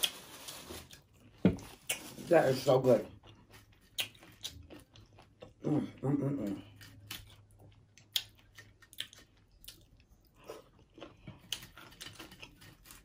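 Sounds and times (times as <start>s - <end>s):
chewing crunchy food: 2.9s - 13.0s.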